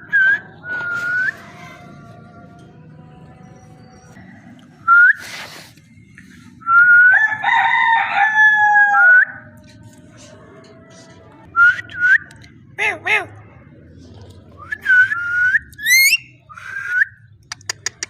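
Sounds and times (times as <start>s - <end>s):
parakeet whistling call: 15.8s - 16.3s.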